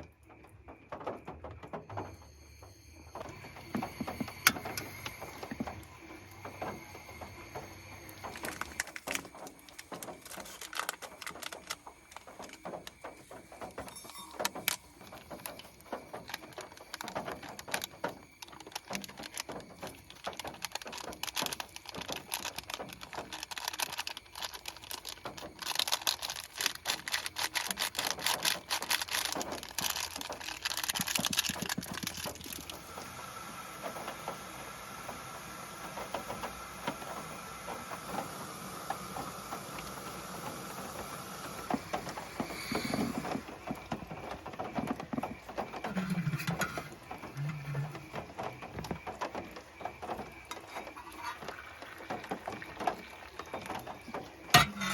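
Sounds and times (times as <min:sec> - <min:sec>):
heavy rain on a car roof: 0:14.6 - 0:47.2.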